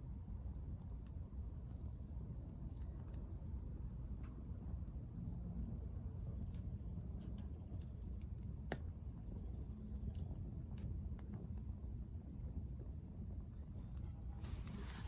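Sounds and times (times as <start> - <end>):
wood fire crackling and popping: 0.0 - 1.7, 2.3 - 15.0
low steady rumble: 0.0 - 15.0.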